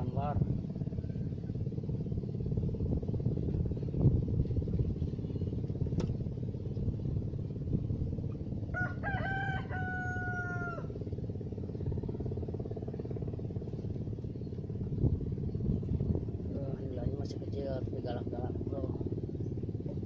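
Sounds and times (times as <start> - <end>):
low engine-like rumble: 0.0 - 20.0
rooster crowing: 8.7 - 10.9.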